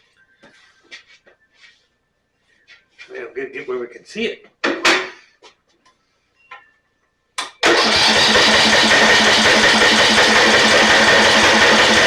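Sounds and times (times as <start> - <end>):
electric starter cranking engine: 7.6 - 12.0.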